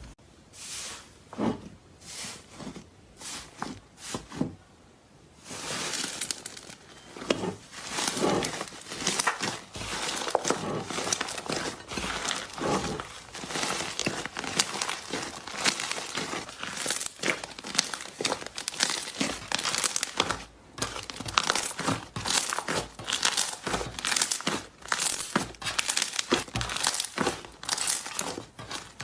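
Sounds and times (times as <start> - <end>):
slime crackling and popping: 7.8 - 29.0.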